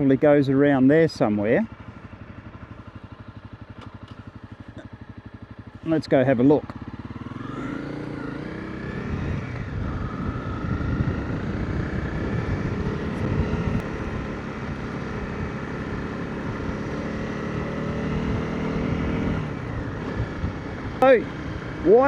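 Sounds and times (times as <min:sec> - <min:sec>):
road rumble: 0:00.0 - 0:22.0
motorcycle engine pulling away: 0:01.6 - 0:22.0
wind noise: 0:08.9 - 0:17.0, 0:18.0 - 0:21.0.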